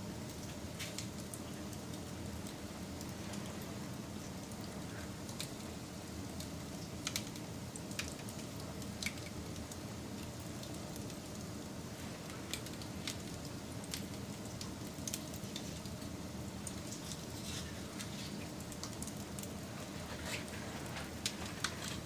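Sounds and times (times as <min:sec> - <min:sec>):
wood fire crackling: 0:00.0 - 0:22.0
fire pops and snaps: 0:00.7 - 0:01.4, 0:06.4 - 0:09.6, 0:16.6 - 0:22.0.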